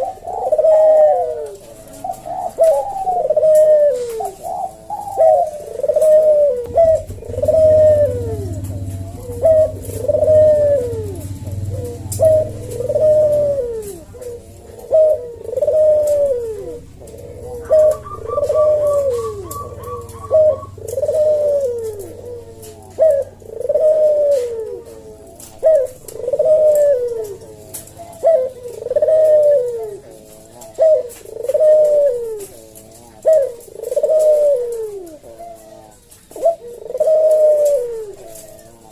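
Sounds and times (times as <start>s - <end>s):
dove cooing: 0.0s - 38.9s
low hum: 5.5s - 23.5s.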